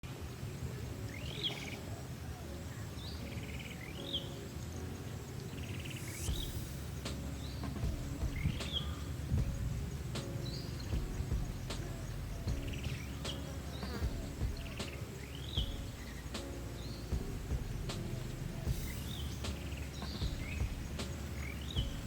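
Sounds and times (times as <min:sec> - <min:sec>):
bird chirping: 0:00.6 - 0:22.0
buzzy rattling bird calls: 0:05.5 - 0:09.3
low outdoor rumble: 0:06.3 - 0:22.0.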